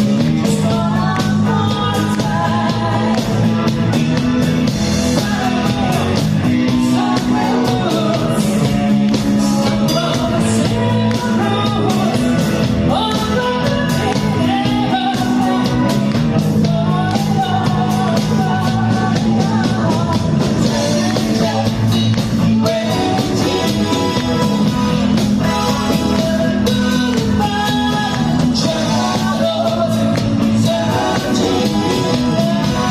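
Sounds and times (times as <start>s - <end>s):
person singing: 0.0s - 4.2s, 4.8s - 32.9s
rock band playing: 0.0s - 32.9s.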